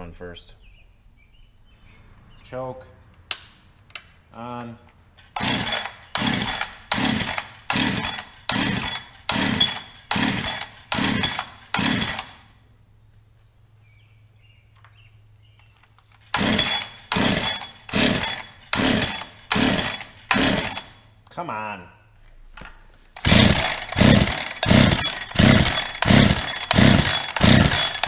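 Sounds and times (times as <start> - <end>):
chainsaw engine cranking: 4.5 - 12.5, 16.1 - 21.1, 23.1 - 28.0
chainsaw recoil starter pulls: 4.5 - 12.5, 16.1 - 21.0, 23.1 - 28.0.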